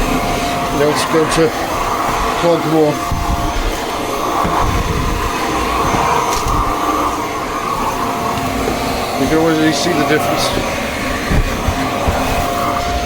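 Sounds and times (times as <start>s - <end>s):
stick vacuum running: 0.0s - 13.0s.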